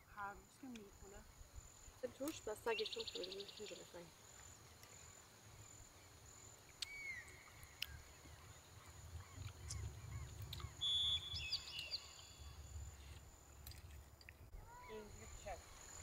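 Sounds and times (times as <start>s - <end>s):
birds chirping and calling: 6.8s - 13.2s
low rumble: 9.0s - 11.6s
clear whistled bird note: 9.7s - 12.5s.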